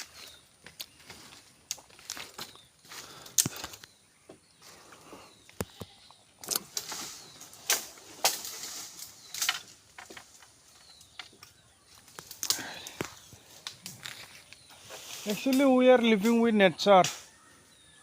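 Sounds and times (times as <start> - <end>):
branch snaps: 3.2 - 3.9, 6.4 - 14.6
leafy branches rustling: 6.3 - 17.4.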